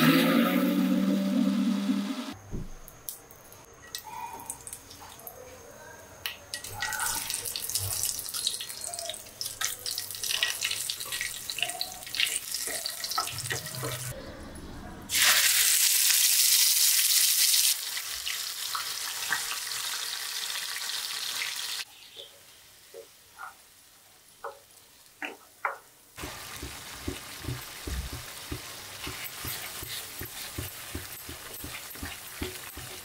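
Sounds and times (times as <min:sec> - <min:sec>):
spices crackling in hot oil: 0:06.5 - 0:14.1, 0:15.1 - 0:33.0.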